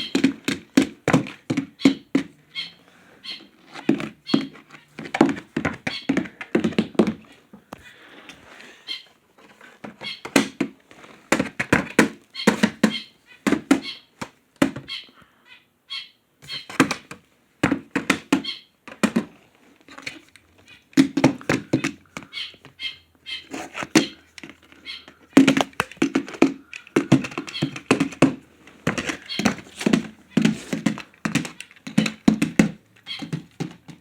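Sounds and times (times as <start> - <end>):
horse hoofbeats: 21.0 - 34.0.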